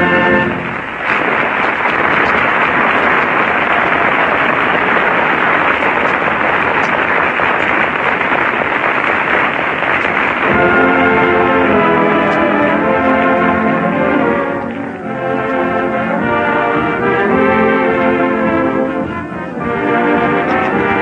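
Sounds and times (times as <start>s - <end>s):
music: 0.0s - 2.6s, 10.4s - 21.0s
audience applauding: 0.0s - 21.0s.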